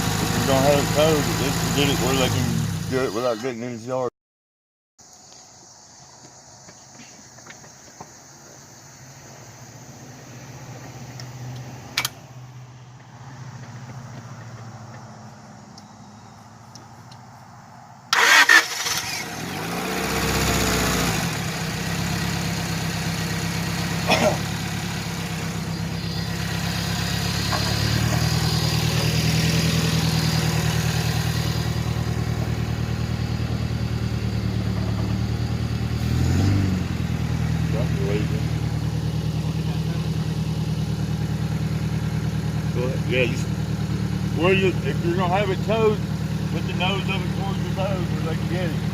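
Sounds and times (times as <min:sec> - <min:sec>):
vehicle engine idling: 0:00.0 - 0:04.0, 0:05.1 - 0:48.9.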